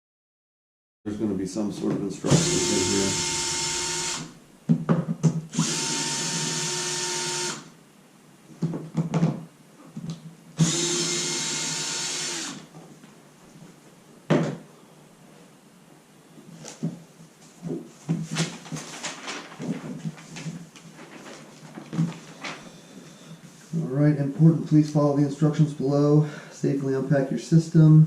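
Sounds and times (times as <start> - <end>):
cordless drill whining: 2.3 - 4.4, 5.5 - 7.7, 10.6 - 12.7.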